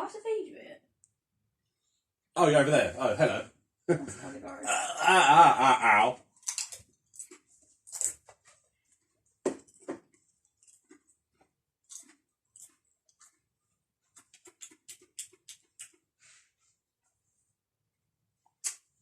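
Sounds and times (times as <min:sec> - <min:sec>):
chewing crisp crunches: 0:06.4 - 0:08.5, 0:09.6 - 0:13.5, 0:14.1 - 0:16.1.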